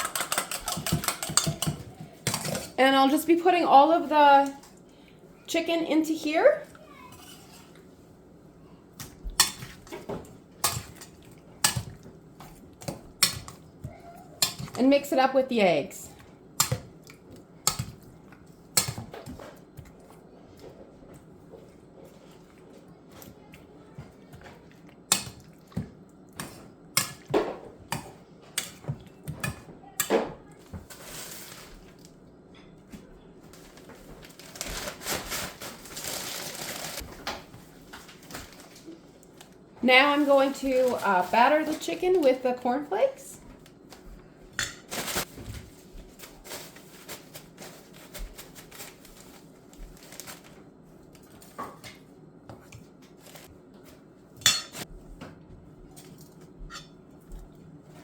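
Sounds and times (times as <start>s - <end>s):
utensil clinking against bowl: 0.0s - 2.8s
crunchy rustling: 33.5s - 37.1s.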